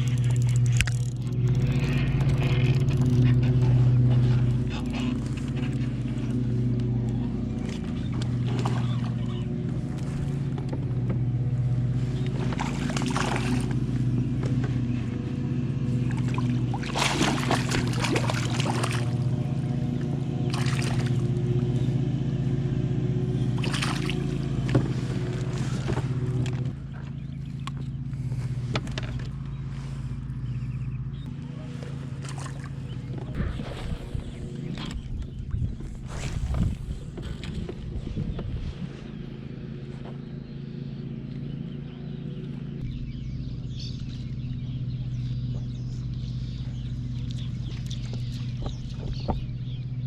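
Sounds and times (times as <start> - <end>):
water splashing and sloshing: 0.0 - 21.9, 23.4 - 30.3, 31.6 - 39.2, 45.0 - 50.0
boat motor humming: 0.0 - 50.0.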